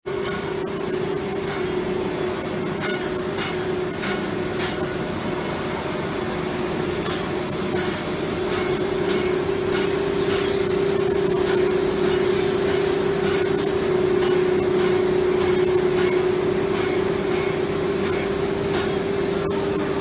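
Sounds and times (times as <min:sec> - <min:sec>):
spindle whine: 0:19.0 - 0:20.0.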